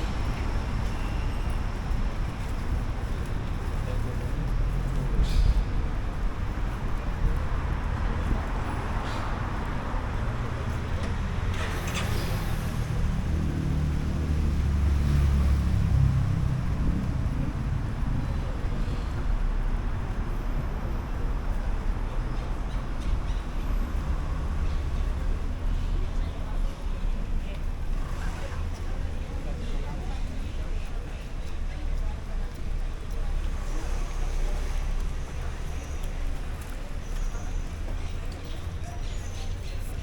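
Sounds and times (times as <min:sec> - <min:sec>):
traffic rumble: 0:00.0 - 0:40.0
vehicle passing close by: 0:11.2 - 0:18.2.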